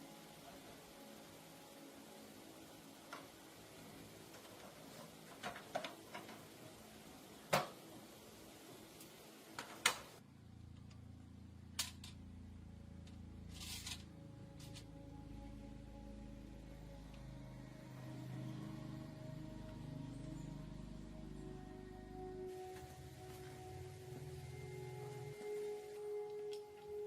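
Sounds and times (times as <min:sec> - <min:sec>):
soft background music: 0:00.0 - 0:09.9, 0:12.6 - 0:27.0.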